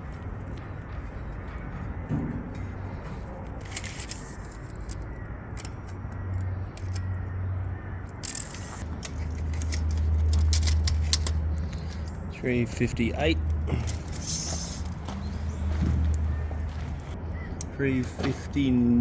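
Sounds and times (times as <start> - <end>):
metallic clinks and knocks: 8.2 - 12.2.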